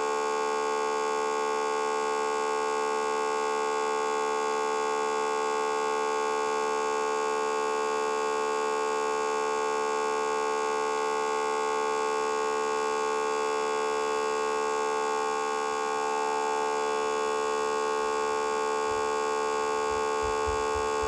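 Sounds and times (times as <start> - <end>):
steady buzzing tone: 12.5 - 21.0
faint low thumps: 18.9 - 19.1, 19.7 - 21.0.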